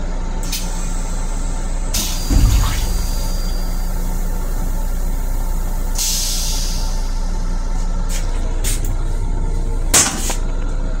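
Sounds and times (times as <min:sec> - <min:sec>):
steady hum: 0:01.6 - 0:06.0
toilet air hisses: 0:05.7 - 0:07.2.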